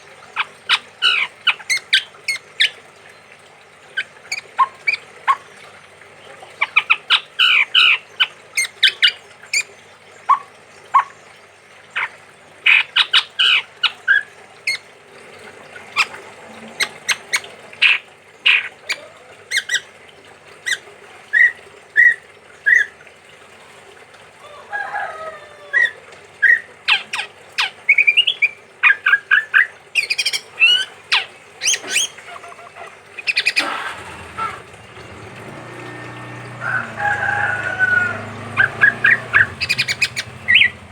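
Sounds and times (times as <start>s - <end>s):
bird calling sharp notes: 25.6s - 40.9s.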